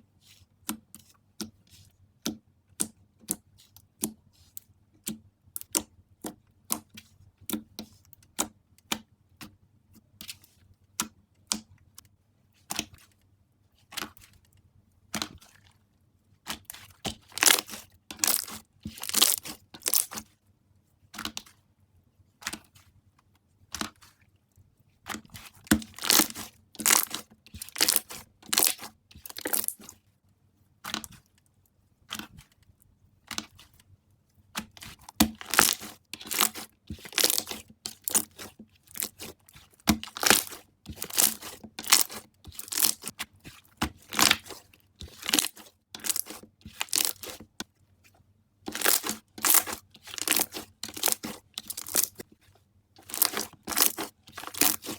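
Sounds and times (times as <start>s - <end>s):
slime popping and crackling: 17.4s - 20.2s, 25.7s - 29.8s, 35.3s - 39.3s, 39.9s - 43.1s, 44.1s - 44.5s, 45.1s - 47.4s, 48.7s - 52.2s, 53.0s - 54.9s.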